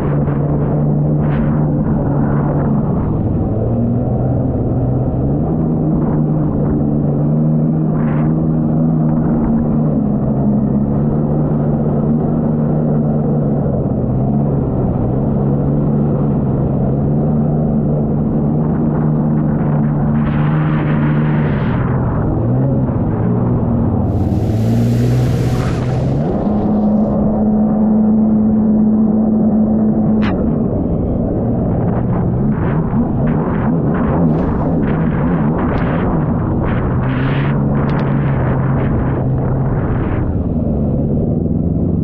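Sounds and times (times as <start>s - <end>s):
jet ski engine drone: 0.0s - 42.0s
wind: 0.0s - 42.0s
water hiss: 24.0s - 27.2s.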